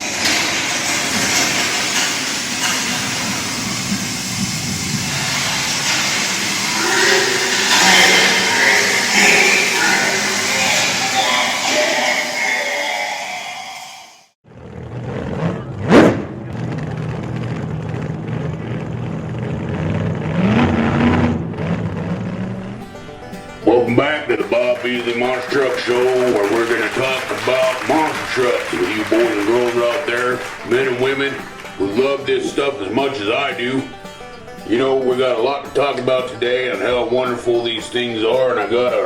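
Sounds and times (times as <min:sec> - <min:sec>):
loud vehicle engine: 0:00.0 - 0:12.5, 0:14.4 - 0:34.7.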